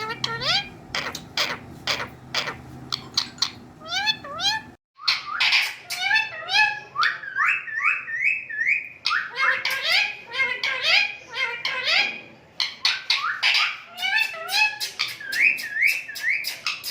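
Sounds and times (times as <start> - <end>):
parrot meow-like calls: 0.0 - 6.8.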